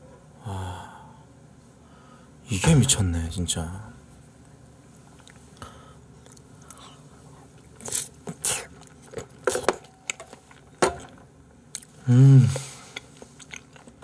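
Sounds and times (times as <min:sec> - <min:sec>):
person chewing food: 0:05.1 - 0:14.0.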